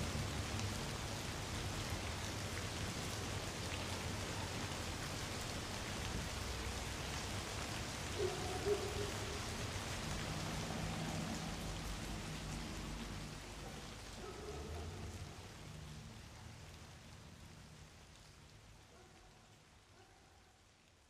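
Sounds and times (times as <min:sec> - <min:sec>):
light rain dripping: 0:00.0 - 0:21.0.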